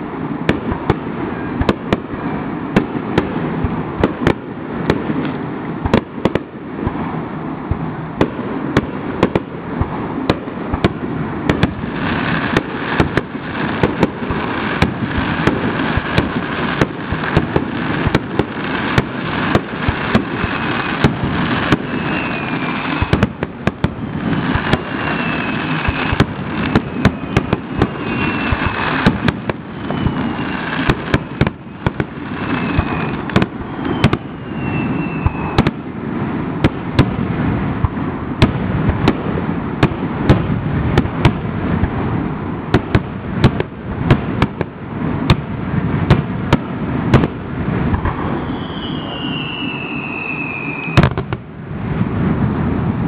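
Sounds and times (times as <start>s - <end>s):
fireworks hissing and crackling: 0.0s - 53.0s
fireworks popping and banging: 0.0s - 53.0s
faint firework whistles: 8.2s - 36.0s, 47.2s - 51.4s.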